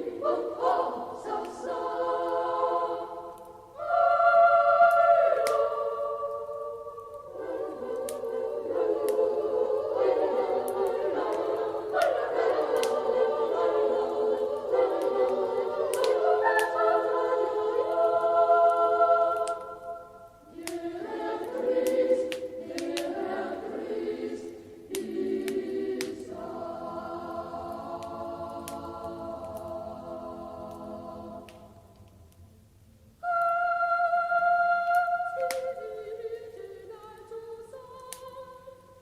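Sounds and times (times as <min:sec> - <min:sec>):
choir singing slow song: 0:00.0 - 0:39.0
log fire crackling and popping: 0:04.8 - 0:32.4, 0:34.8 - 0:35.9, 0:38.0 - 0:38.4.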